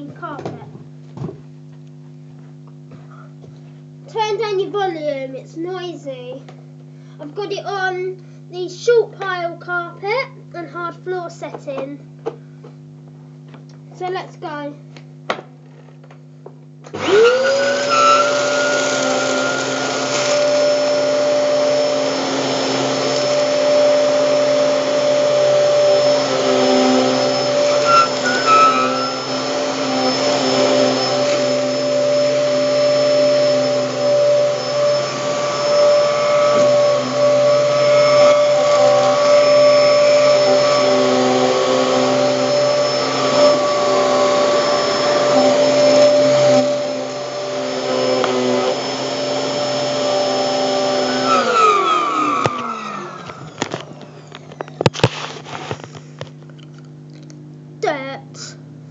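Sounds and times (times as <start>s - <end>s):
vacuum cleaner motor whining: 16.8s - 56.6s.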